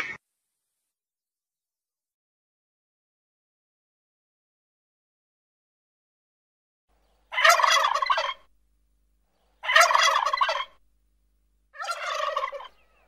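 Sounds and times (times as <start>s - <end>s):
wild turkey gobbling: 7.0s - 8.6s, 9.3s - 10.9s, 11.7s - 13.0s.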